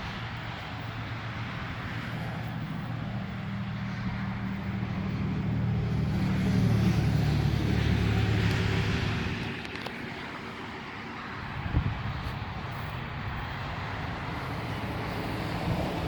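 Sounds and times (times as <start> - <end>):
vehicle engine driving past: 2.1 - 9.8.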